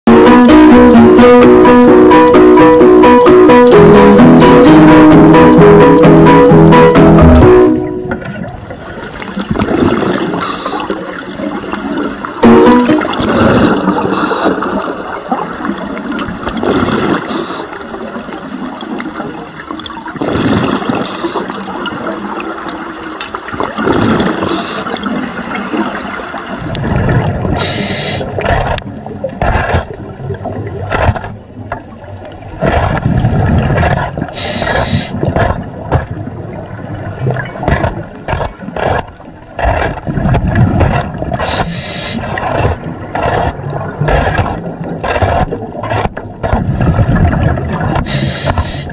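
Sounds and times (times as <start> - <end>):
scraper scraping underwater: 5.2 - 18.0, 20.1 - 22.1, 23.6 - 31.5, 32.5 - 48.9
regulator exhaust bubbles gurgling: 8.4 - 27.7.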